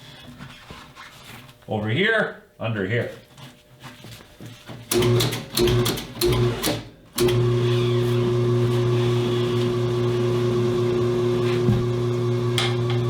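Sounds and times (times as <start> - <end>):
electric motor humming: 7.2 - 13.0.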